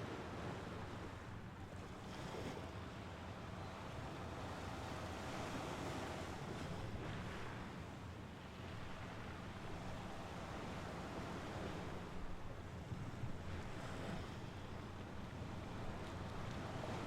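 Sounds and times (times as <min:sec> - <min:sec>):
waves washing on shore: 0:08.6 - 0:17.0.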